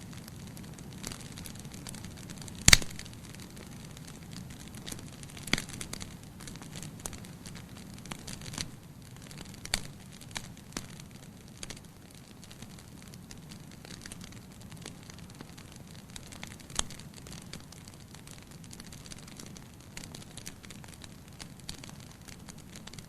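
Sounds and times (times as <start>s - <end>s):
campfire crackling and popping: 0.0s - 23.0s
fire hissing: 2.5s - 3.8s.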